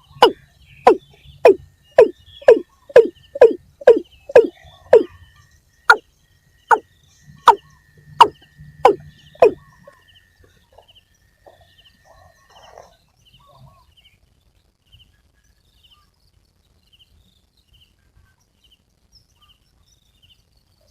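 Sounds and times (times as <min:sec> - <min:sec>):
faint high chirping: 0:00.0 - 0:14.0
water cock calling: 0:00.2 - 0:05.1, 0:08.2 - 0:09.6.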